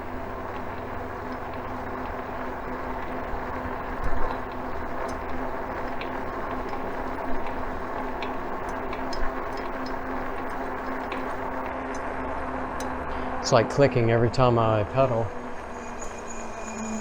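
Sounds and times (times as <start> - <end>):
electric bike hum and rumble: 0.0 - 17.0
pedal clicks: 0.4 - 12.0.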